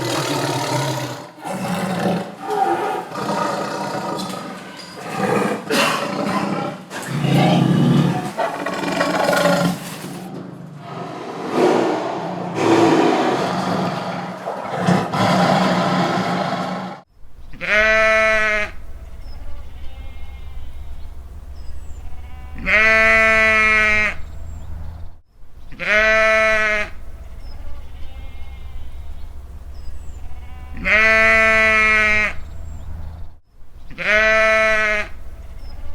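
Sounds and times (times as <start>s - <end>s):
large animal calling: 0.0s - 10.0s, 10.8s - 17.0s
farm animal bleating loudly: 17.5s - 21.2s, 21.9s - 24.3s, 25.7s - 29.4s, 30.0s - 32.5s, 33.9s - 35.9s
faint bleats in background: 17.6s - 18.8s, 19.4s - 20.9s, 22.1s - 24.2s, 25.7s - 29.1s, 30.1s - 32.4s, 33.9s - 35.2s.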